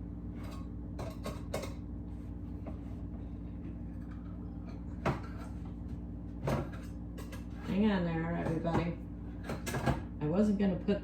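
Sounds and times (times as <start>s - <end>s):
steady low hum: 0.0s - 11.0s
kitchen items knocking and clicking: 0.4s - 1.8s, 3.9s - 5.6s, 6.4s - 10.1s.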